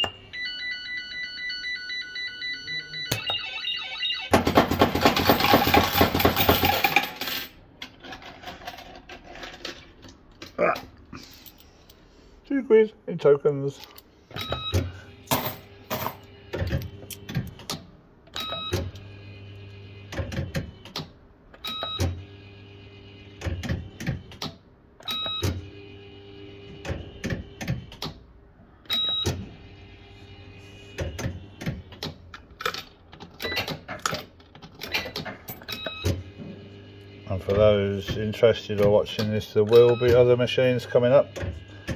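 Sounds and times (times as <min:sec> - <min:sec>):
short electronic beeps: 0:00.0 - 0:04.3
mechanical clunks and clicks: 0:28.9 - 0:29.5, 0:31.0 - 0:36.5, 0:38.0 - 0:40.4.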